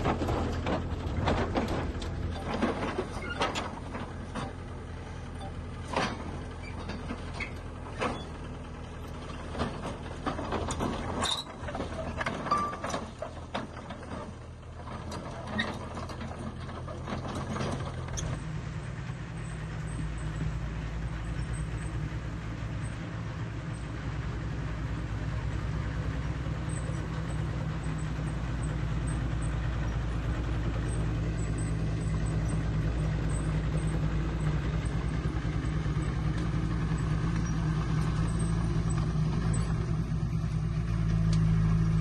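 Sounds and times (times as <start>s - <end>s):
metallic clanks and knocks: 0.0s - 4.8s, 5.4s - 8.4s, 9.4s - 18.4s
heavy diesel engine running: 0.0s - 42.0s.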